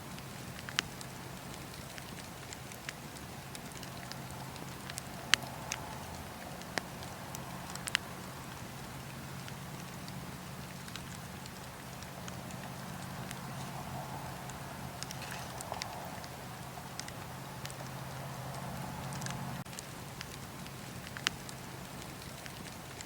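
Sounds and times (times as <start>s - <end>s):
wood fire crackling and popping: 0.0s - 23.0s.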